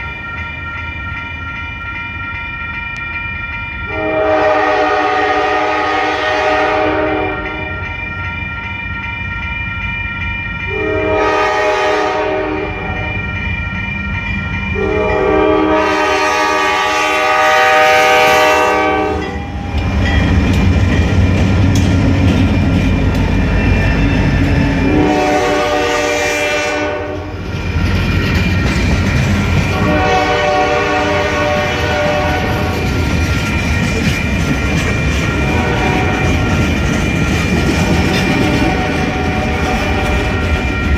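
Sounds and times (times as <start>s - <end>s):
train rumbling past: 0.0s - 40.9s
locomotive horn blasts: 3.9s - 7.8s, 10.7s - 13.1s, 14.8s - 19.6s, 23.5s - 27.4s, 29.7s - 32.8s, 35.4s - 36.3s.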